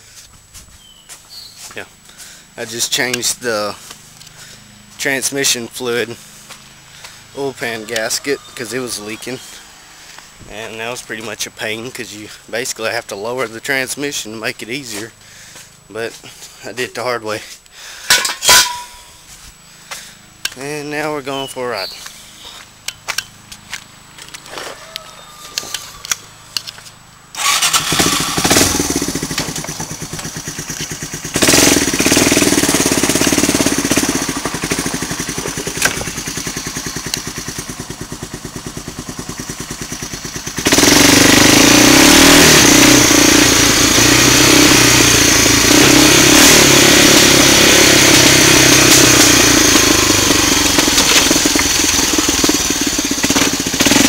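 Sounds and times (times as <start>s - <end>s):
atv engine revving: 2.0s - 14.0s, 24.2s - 54.0s.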